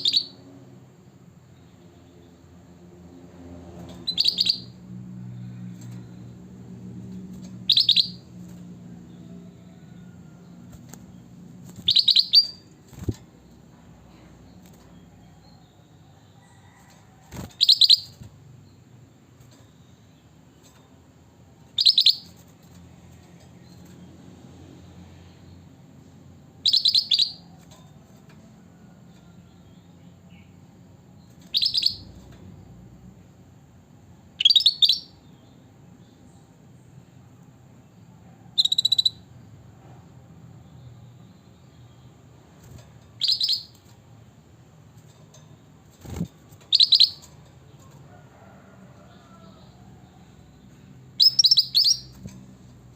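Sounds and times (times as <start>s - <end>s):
bird bright short calls: 51.2s - 52.1s.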